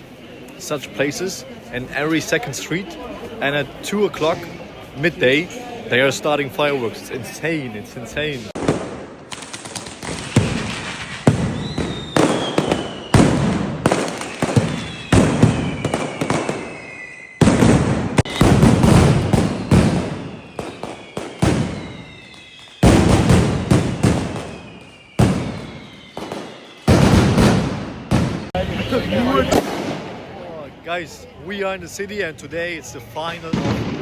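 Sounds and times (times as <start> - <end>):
whistling fireworks: 0.0 - 5.9, 8.1 - 31.4, 32.8 - 34.0
fireworks bangs: 8.4 - 30.6, 33.5 - 34.0.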